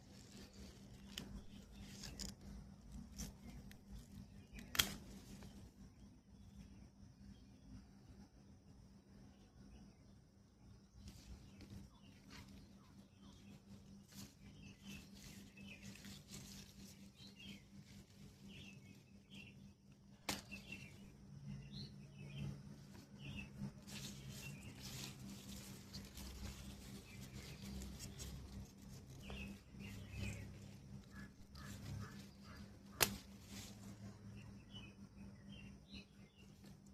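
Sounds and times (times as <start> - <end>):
steady low hum: 0.0 - 36.9
faint small bird chirps: 0.1 - 36.9.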